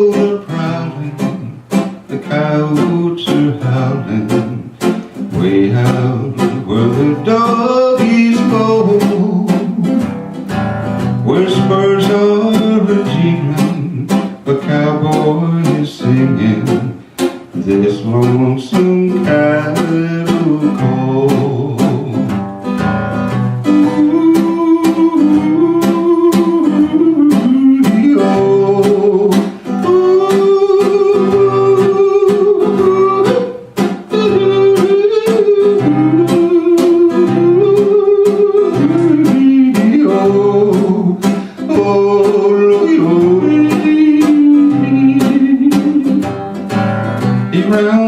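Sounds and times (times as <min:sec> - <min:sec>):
acoustic guitar strumming: 0:00.0 - 0:48.0
person yodeling: 0:23.8 - 0:46.3.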